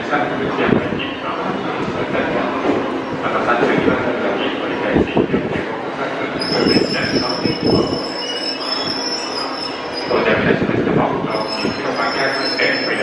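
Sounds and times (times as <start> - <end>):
train brakes squealing: 6.4 - 10.6, 11.3 - 13.0.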